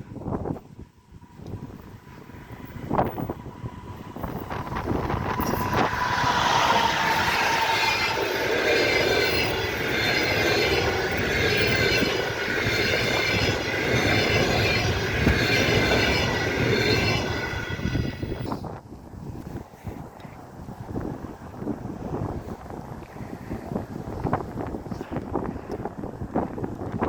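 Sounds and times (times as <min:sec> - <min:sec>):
train wheels on rails: 0:00.0 - 0:18.9
wheel squeal: 0:02.4 - 0:18.6.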